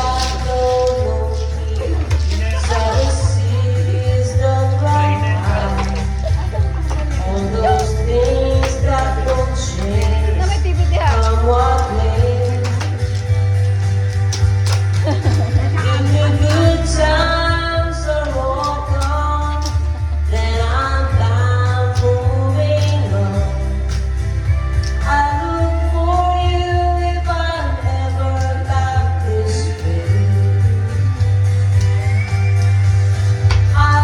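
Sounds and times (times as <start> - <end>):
woman singing country-folk song: 0.0 - 13.0, 15.8 - 23.9, 24.9 - 30.4, 33.6 - 34.0
instrumental accompaniment with bass: 0.0 - 34.0.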